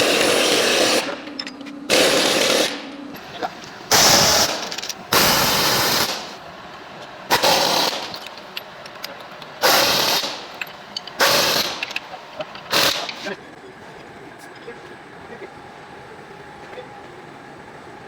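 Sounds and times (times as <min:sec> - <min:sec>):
pneumatic impact wrench rattling: 0:00.0 - 0:06.4, 0:07.3 - 0:13.3.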